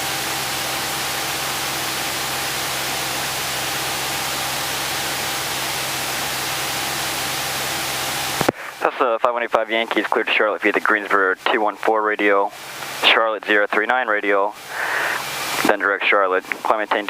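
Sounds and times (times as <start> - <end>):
radio static hiss: 0.8 - 17.0.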